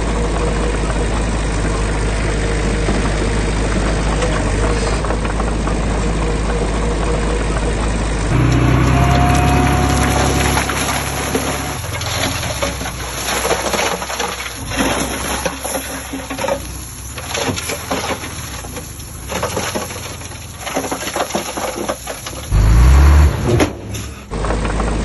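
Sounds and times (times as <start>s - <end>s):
loud low rumble: 0.0s - 12.6s
earthmoving machinery clattering: 8.3s - 22.7s.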